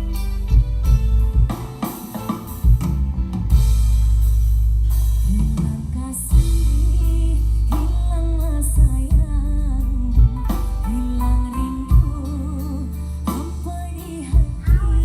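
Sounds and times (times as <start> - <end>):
heavy steady bass: 0.0 - 15.0
song with drums guitar and singing: 0.0 - 15.0.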